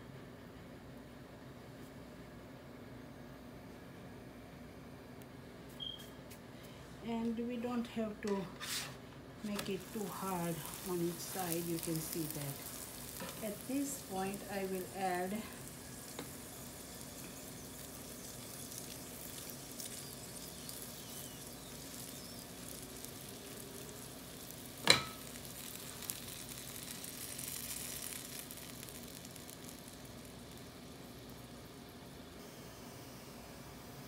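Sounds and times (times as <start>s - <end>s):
ghee sizzling on a griddle: 8.7s - 32.8s.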